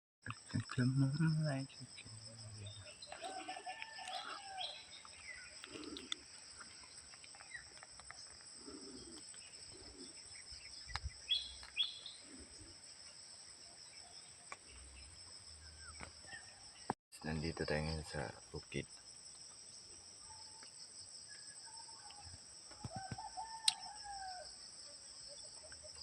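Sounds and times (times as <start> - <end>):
crickets droning: 0.2 - 26.0
bird chirps and calls: 9.8 - 12.3.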